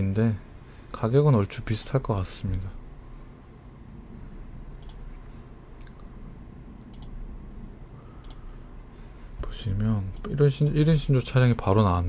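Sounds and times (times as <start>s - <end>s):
low steady hum: 0.0s - 12.0s
computer mouse clicking: 4.8s - 5.1s, 6.9s - 7.2s, 8.2s - 8.5s.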